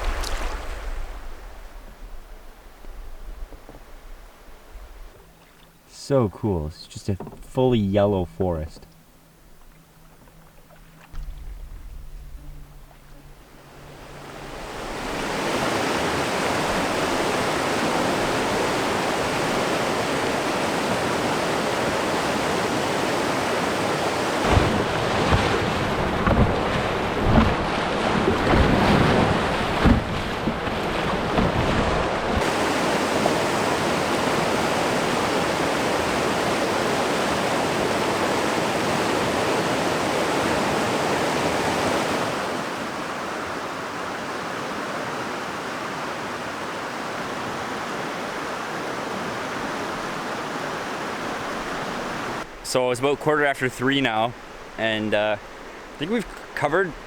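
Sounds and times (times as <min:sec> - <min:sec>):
low thumps of wind on microphone: 0:00.0 - 0:05.4, 0:09.2 - 0:45.7
river water rushing through rapids: 0:13.6 - 0:29.9, 0:30.8 - 0:52.6.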